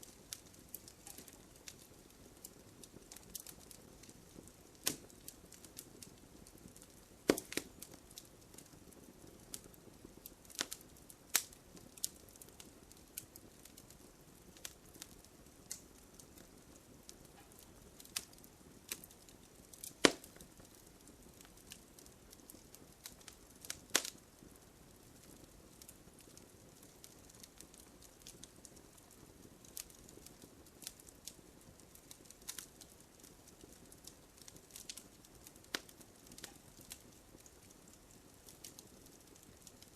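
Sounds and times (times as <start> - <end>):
soft low hiss: 0.0 - 39.9
wood fire crackling: 0.0 - 39.9
sharp pops: 7.3 - 7.8.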